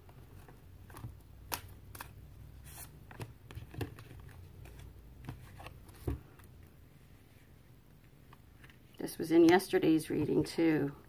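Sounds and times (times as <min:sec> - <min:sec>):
cards rustling and clicking: 0:00.0 - 0:06.6.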